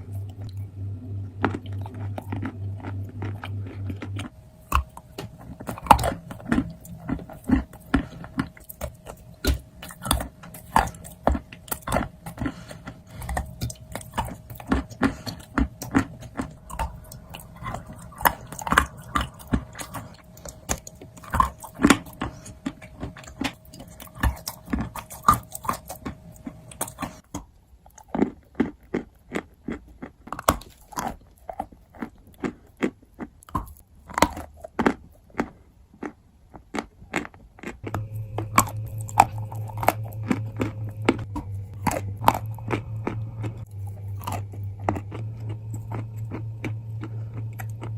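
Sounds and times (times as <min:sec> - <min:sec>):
low hum: 0:00.0 - 0:27.2, 0:37.8 - 0:47.9
crunching and chewing: 0:00.0 - 0:47.9.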